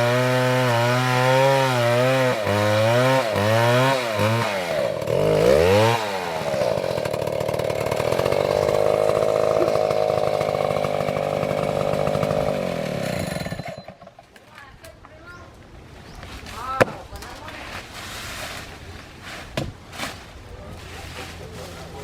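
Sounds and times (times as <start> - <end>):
chainsaw running: 0.0 - 14.3.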